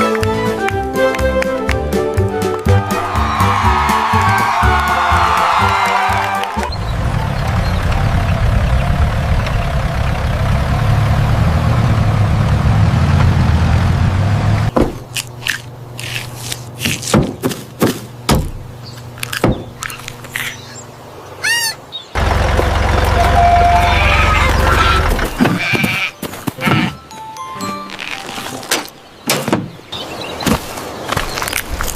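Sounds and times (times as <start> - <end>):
low motor-like rumble: 6.6 - 14.7, 22.2 - 25.4
short wavering pitched call: 23.2 - 25.1.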